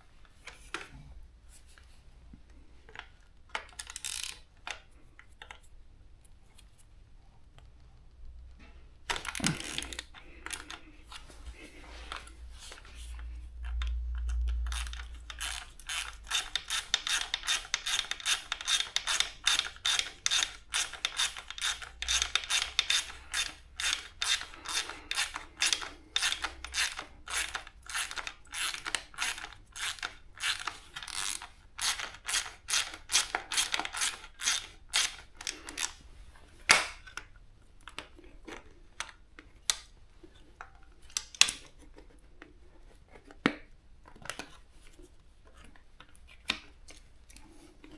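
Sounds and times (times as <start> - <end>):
ratchet wrench clicking: 3.8 - 4.4, 13.6 - 36.0.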